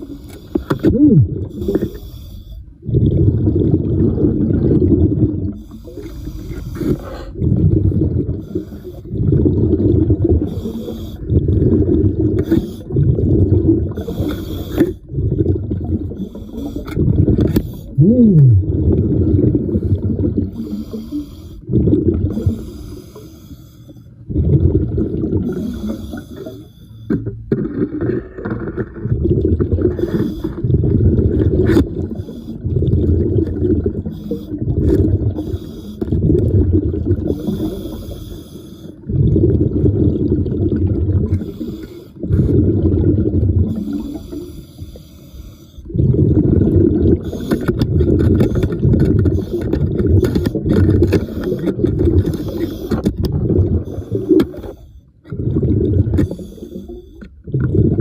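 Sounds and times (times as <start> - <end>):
diver breathing through regulator: 0.0 - 2.8, 5.5 - 7.5, 8.3 - 9.1, 10.4 - 11.5, 12.3 - 13.1, 13.9 - 15.1, 16.2 - 18.6, 19.4 - 24.3, 25.4 - 27.5, 29.8 - 31.0, 34.0 - 36.2, 37.2 - 39.1, 41.2 - 42.8, 43.6 - 46.0, 47.2 - 53.2, 53.8 - 55.2, 56.1 - 57.4.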